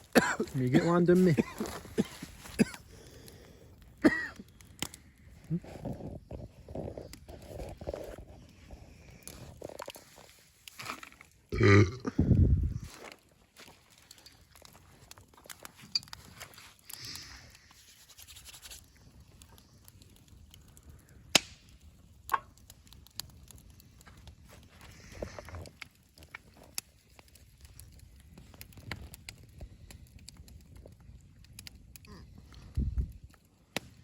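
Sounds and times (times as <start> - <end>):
campfire crackling: 0.0 - 34.0
fire wood snapping: 0.0 - 34.0.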